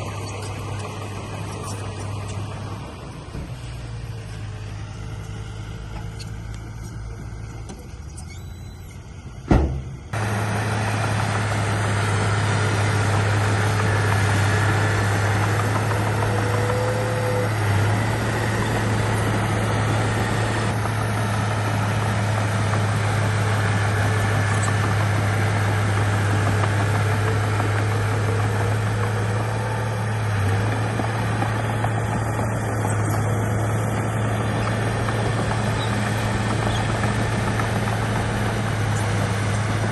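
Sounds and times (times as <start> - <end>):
diesel engine droning: 0.0 - 39.9
sharp knock: 9.5 - 9.9.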